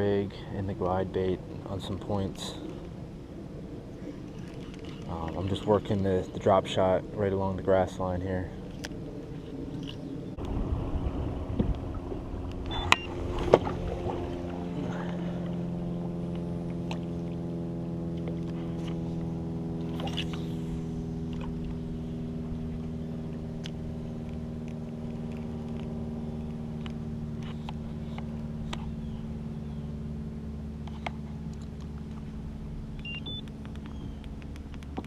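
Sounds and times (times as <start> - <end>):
boat motor humming: 0.0 - 35.0.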